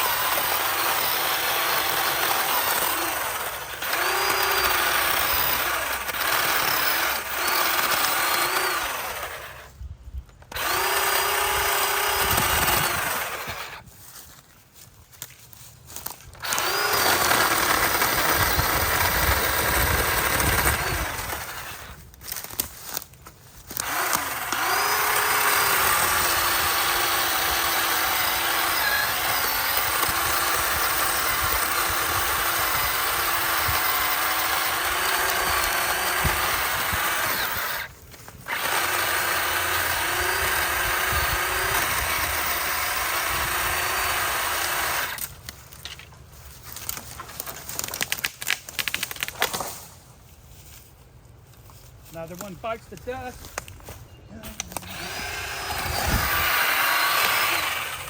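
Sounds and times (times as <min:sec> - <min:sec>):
electric chainsaw cutting wood: 0:00.0 - 0:09.7, 0:10.5 - 0:13.8, 0:16.3 - 0:22.0, 0:23.7 - 0:45.3, 0:54.5 - 0:58.0.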